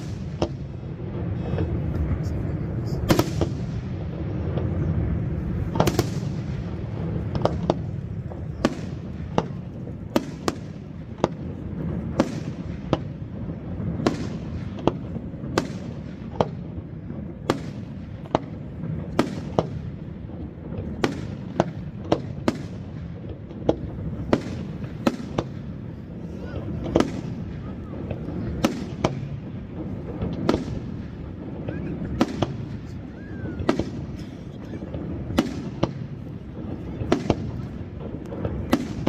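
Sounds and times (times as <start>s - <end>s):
steady low rumble: 0.0s - 21.0s
firework bangs: 0.0s - 39.0s.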